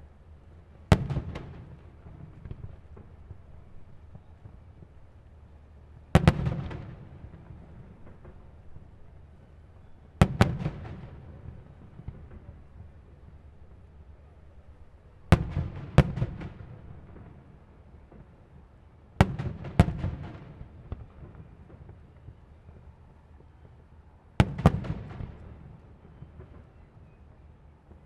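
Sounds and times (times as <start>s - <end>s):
small firework pops: 0.9s - 5.2s, 24.4s - 28.0s.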